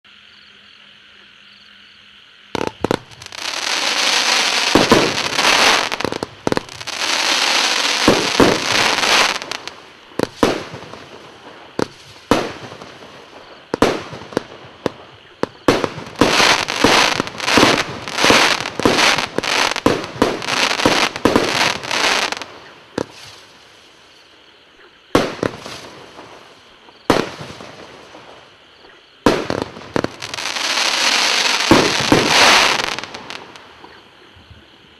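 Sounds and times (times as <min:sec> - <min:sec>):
firework shots: 0:02.6 - 0:23.4, 0:25.2 - 0:26.5, 0:27.1 - 0:28.5, 0:29.2 - 0:34.0
firework rushing sizzling noise: 0:02.6 - 0:24.0, 0:29.4 - 0:33.7.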